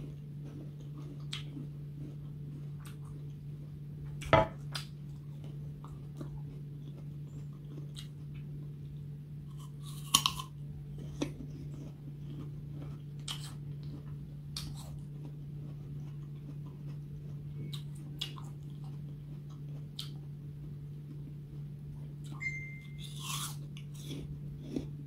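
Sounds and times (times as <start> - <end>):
crunchy apple chewing: 0.0 - 25.0
steady low hum: 0.0 - 25.0
loud crisp apple bites: 9.5 - 10.6.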